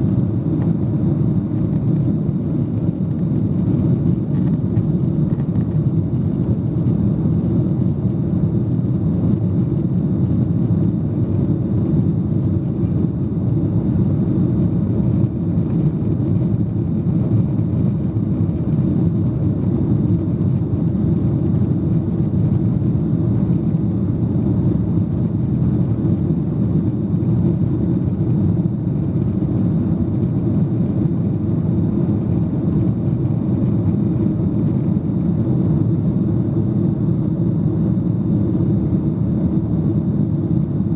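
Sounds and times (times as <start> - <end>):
airplane cabin engine rumble: 0.0 - 40.9.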